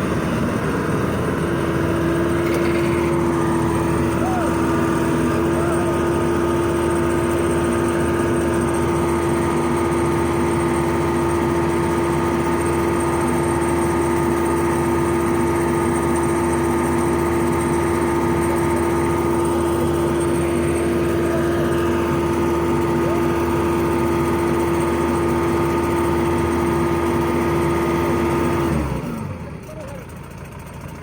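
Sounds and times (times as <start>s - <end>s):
excavator engine running: 0.0s - 31.0s.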